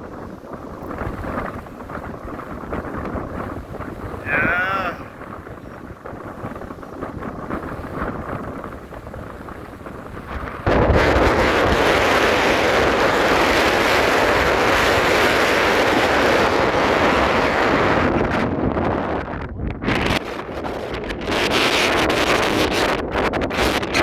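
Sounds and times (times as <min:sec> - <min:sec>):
strong wind on microphone: 0:00.0 - 0:24.0.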